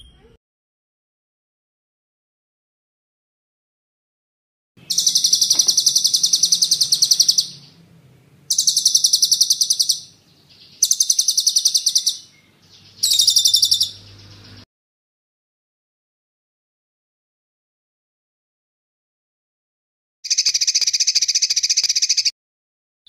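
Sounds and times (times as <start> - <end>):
songbird trilling: 4.8 - 7.9, 8.5 - 14.6, 20.3 - 22.3.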